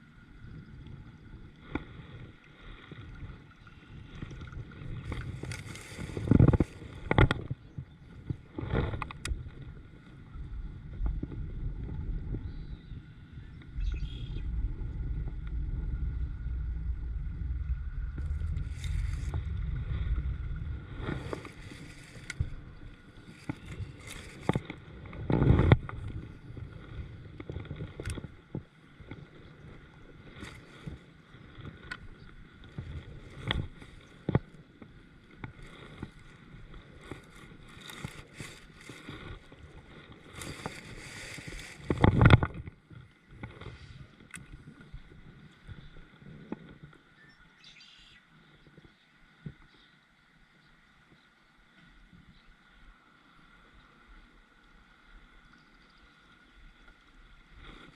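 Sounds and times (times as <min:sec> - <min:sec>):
kayak clicks: 0:04.1 - 0:07.6, 0:08.2 - 0:09.8, 0:21.0 - 0:26.7, 0:27.3 - 0:47.1
low rumble: 0:09.0 - 0:24.6.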